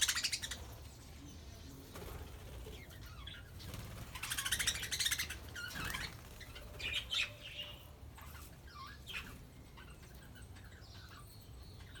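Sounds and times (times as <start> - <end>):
budgerigars chirping: 0.0 - 0.6, 2.8 - 12.0.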